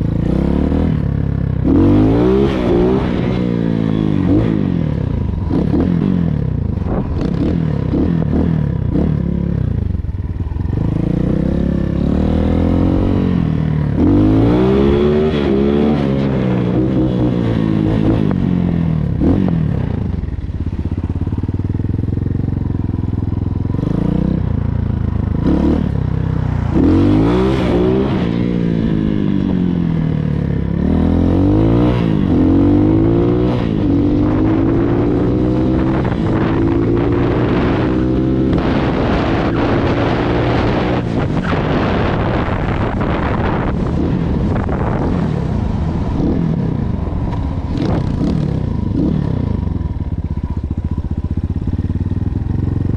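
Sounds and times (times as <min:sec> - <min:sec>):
dirt bike engine revving: 0:00.0 - 0:09.6, 0:10.7 - 0:19.9, 0:25.3 - 0:29.7, 0:30.6 - 0:49.7.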